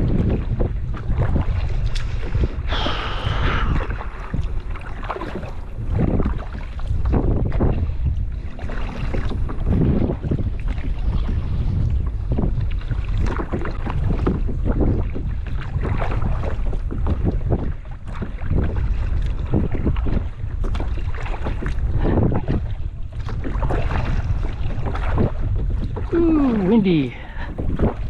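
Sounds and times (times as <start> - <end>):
water splashing around kayak: 0.0 - 28.0
wind rumbling on microphone: 0.0 - 28.0.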